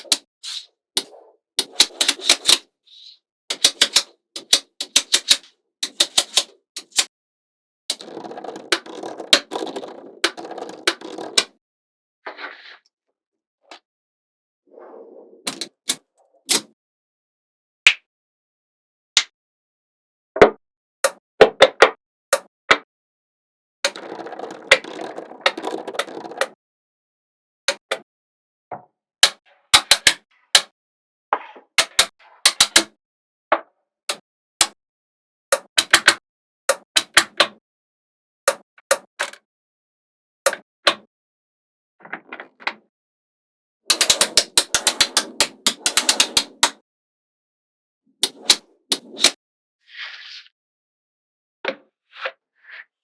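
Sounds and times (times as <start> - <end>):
magnetic balls clicking together: 1.6 - 2.6, 3.5 - 7.1, 7.9 - 11.5, 23.9 - 26.6, 43.9 - 46.8
fast rattling clatter of balls: 23.9 - 26.5.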